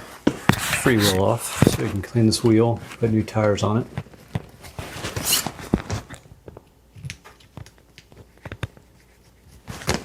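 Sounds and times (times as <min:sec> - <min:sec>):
rustling scrape: 0:00.0 - 0:02.0, 0:04.5 - 0:06.2.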